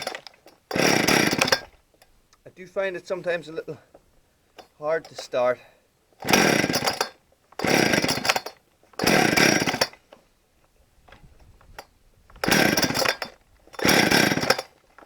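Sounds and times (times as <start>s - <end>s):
chainsaw engine turning over: 0.0s - 1.8s, 4.6s - 5.4s, 6.2s - 10.1s, 11.1s - 15.0s
chainsaw recoil starter pulls: 0.0s - 2.1s, 4.5s - 5.6s, 6.2s - 10.2s, 11.0s - 15.0s.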